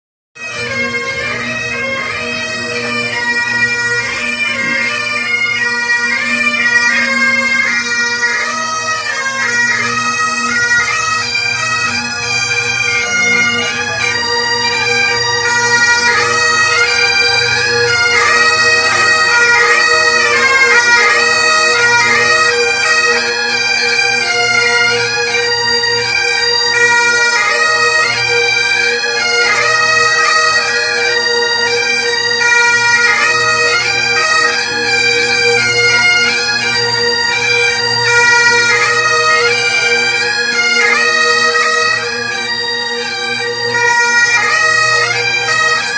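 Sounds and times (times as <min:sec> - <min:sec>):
bagpipe chanter melody: 0:00.4 - 0:45.9
bagpipe drones: 0:00.4 - 0:45.9.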